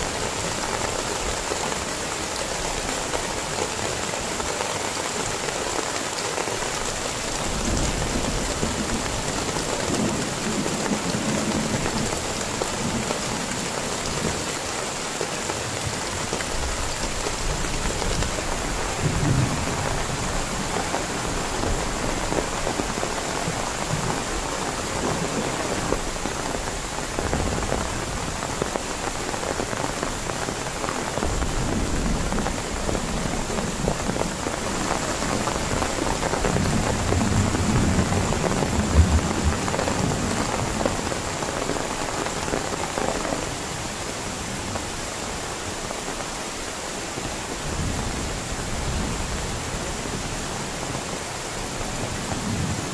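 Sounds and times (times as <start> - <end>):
heavy rain falling: 0.0 - 52.9
thunder rumbling: 17.5 - 28.6, 31.0 - 42.0.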